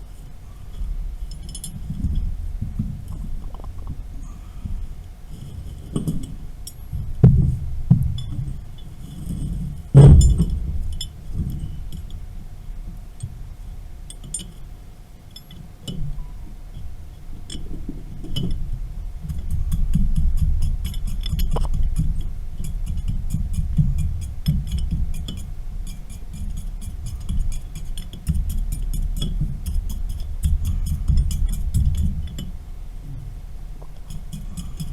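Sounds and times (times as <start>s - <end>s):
low rumble: 0.0s - 14.0s
faint steady hum: 0.0s - 34.9s
heavy metallic knock: 10.0s - 11.0s.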